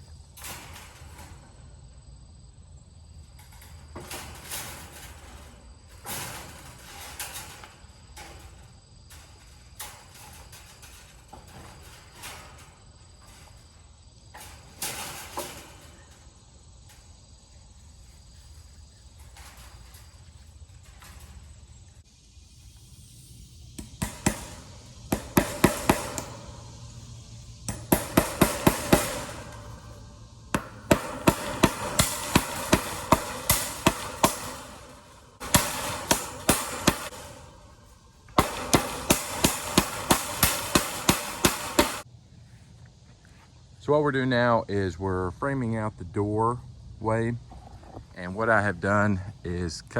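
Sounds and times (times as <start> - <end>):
hammer striking: 23.8 - 26.8, 27.7 - 42.0.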